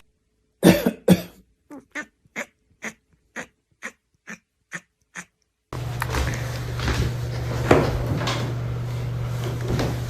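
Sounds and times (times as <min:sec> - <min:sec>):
pet animal making sharp sounds: 0:01.7 - 0:05.6.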